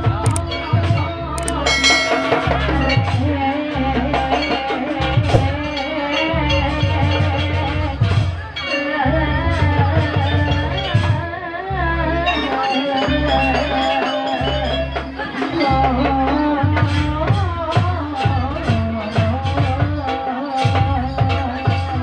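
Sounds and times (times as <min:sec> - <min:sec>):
drums steady beat: 0:00.0 - 0:04.3, 0:05.0 - 0:05.8
person singing: 0:00.0 - 0:07.9
wavering melody line: 0:01.4 - 0:03.4.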